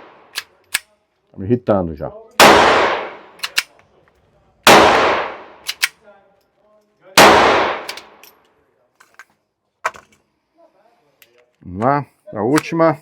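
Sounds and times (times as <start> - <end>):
pistol shots echoing: 2.4 - 3.7, 4.6 - 5.9, 7.2 - 8.2.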